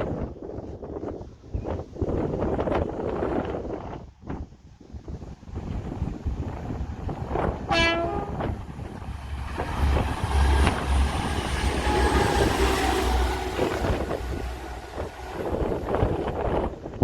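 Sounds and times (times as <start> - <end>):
train rumble: 0.0 - 17.0
train horn blast: 7.7 - 8.6.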